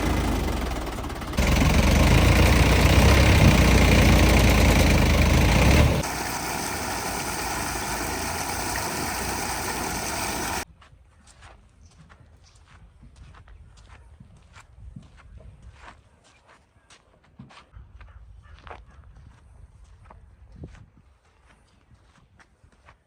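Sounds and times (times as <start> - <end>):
tractor diesel engines running: 0.0 - 10.6.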